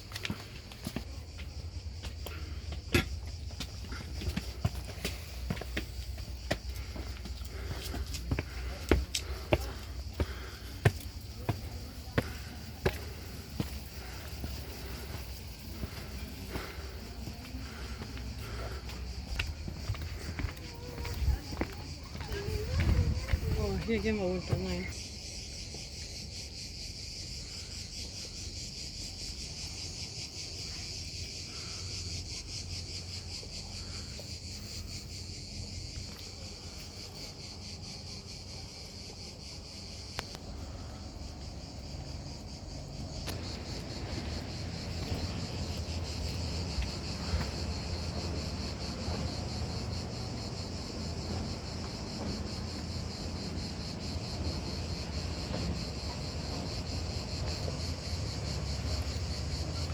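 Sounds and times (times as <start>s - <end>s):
insects buzzing: 0.0s - 59.9s.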